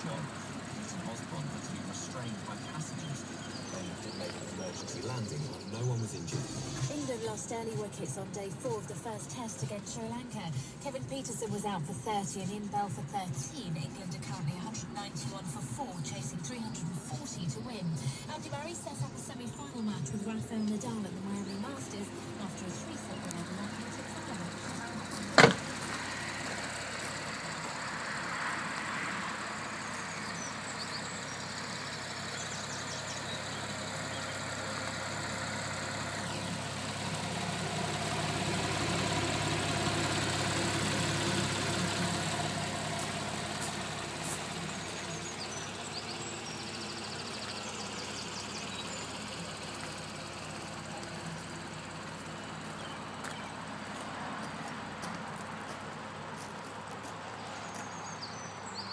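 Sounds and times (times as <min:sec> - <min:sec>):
car engine idling: 0:00.0 - 0:58.9
car door shutting: 0:25.1 - 0:26.1.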